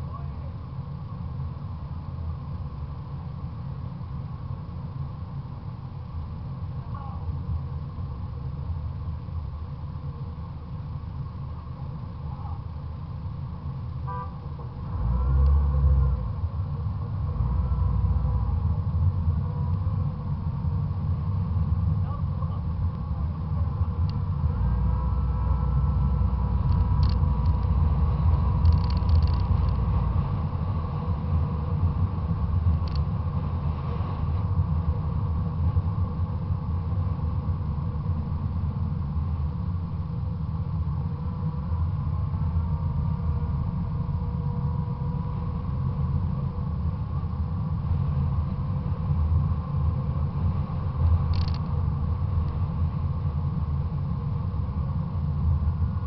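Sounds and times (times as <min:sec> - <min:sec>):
car engine rumbling: 0:00.0 - 0:56.0
wind noise: 0:14.9 - 0:56.0.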